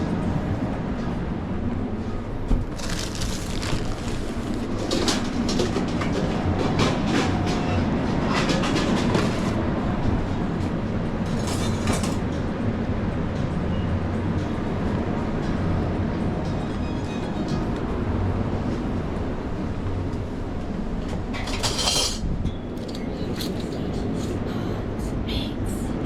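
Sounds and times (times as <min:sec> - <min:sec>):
utensils and cookware clattering: 0:11.3 - 0:12.2, 0:21.4 - 0:22.2.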